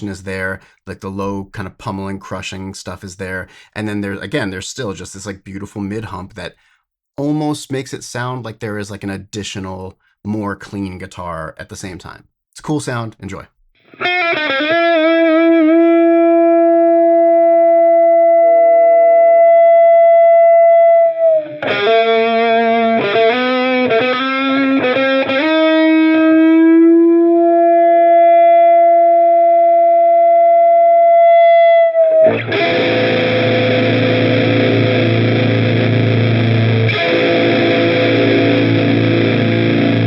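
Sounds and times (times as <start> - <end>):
distorted electric guitar: 13.8 - 40.0
distorted guitar chord: 13.9 - 40.0.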